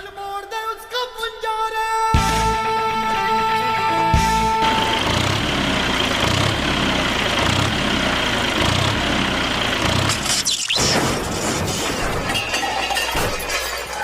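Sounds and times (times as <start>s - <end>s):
tractor engine running: 2.2s - 14.0s.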